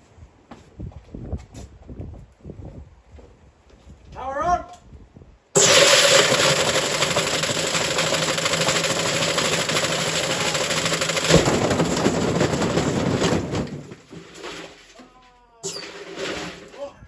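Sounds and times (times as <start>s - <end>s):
washing machine clattering and banging: 5.6s - 15.0s, 15.6s - 17.0s.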